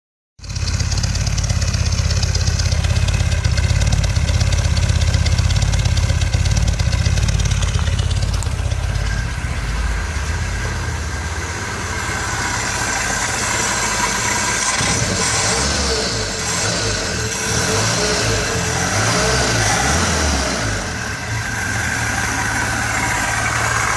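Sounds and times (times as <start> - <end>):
car engine idling: 0.4 - 23.9.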